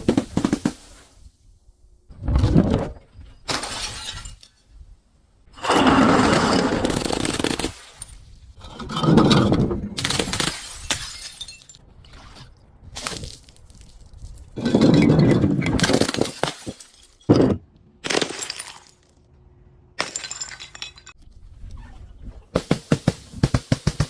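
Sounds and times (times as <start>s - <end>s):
glass bottles shattering: 3.4s - 4.7s, 10.0s - 11.8s, 14.3s - 19.1s, 20.0s - 21.2s.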